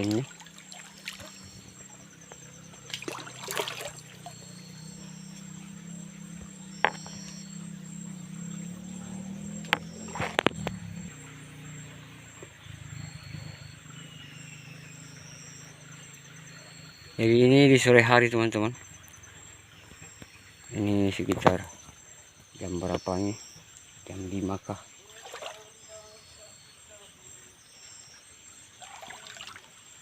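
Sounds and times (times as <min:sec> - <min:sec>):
steady low hum: 0:00.0 - 0:18.2
insects chirping: 0:00.0 - 0:30.0.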